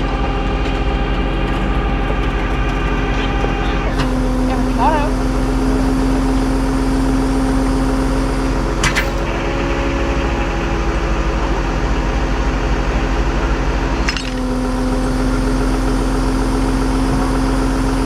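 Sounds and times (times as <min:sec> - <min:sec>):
tow truck mechanical hum: 0:00.0 - 0:18.0
sharp click: 0:08.8 - 0:09.3.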